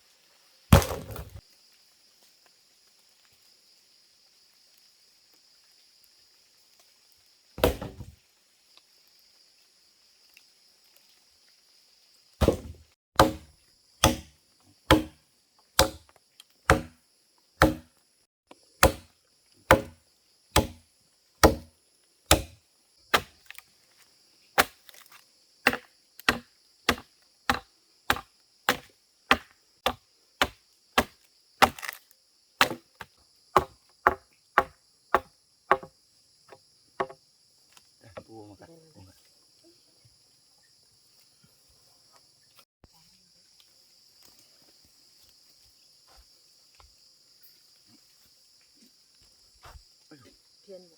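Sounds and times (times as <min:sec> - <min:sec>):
blade chopping wood: 0:00.7 - 0:01.4, 0:07.6 - 0:08.1, 0:12.4 - 0:15.2, 0:15.8 - 0:16.1, 0:16.7 - 0:17.0, 0:17.6 - 0:17.9, 0:18.8 - 0:19.1, 0:19.7 - 0:20.8, 0:21.4 - 0:21.7, 0:22.3 - 0:23.6, 0:24.6 - 0:32.0, 0:32.6 - 0:35.9.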